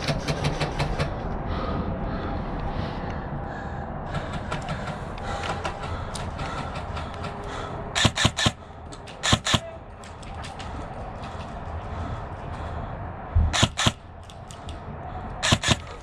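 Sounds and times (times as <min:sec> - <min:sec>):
steady background noise: 0:00.0 - 0:16.0
airsoft gun shots: 0:08.0 - 0:08.6, 0:09.2 - 0:09.8, 0:13.5 - 0:14.0, 0:15.4 - 0:16.0.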